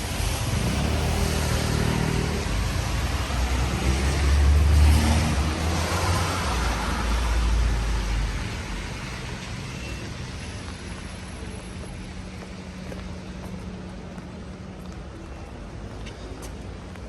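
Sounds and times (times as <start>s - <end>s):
car passing on wet street: 0.0s - 15.1s.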